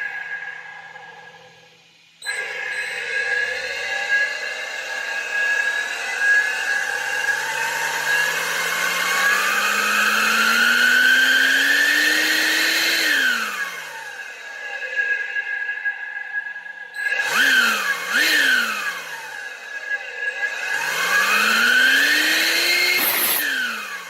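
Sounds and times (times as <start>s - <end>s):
high turbo whistle: 16.5s - 24.0s.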